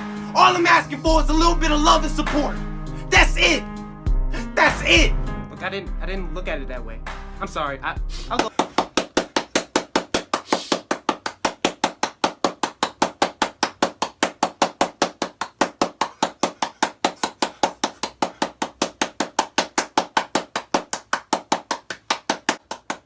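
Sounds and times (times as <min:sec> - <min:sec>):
rapid rhythmic knocks: 0:08.3 - 0:23.0.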